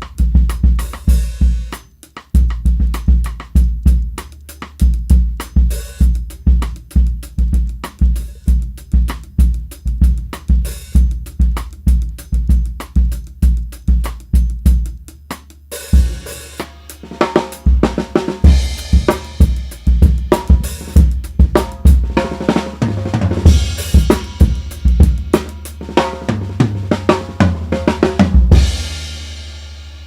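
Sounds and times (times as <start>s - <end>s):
drum kit playing groove: 0.0s - 30.0s.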